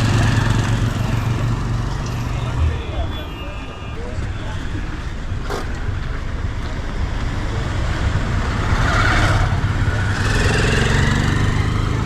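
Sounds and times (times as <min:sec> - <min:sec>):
street noise: 0:00.0 - 0:12.0
heavy low rumble: 0:01.8 - 0:04.0.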